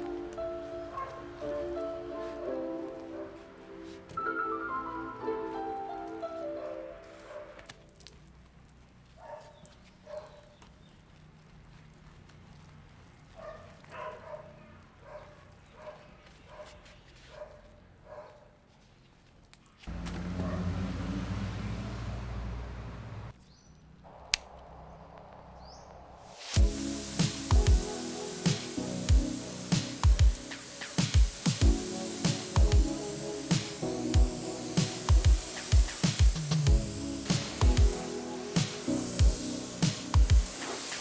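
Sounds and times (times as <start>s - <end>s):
dog barking: 9.2s - 10.4s, 13.4s - 18.6s
rushing machine noise with hum: 26.6s - 41.0s.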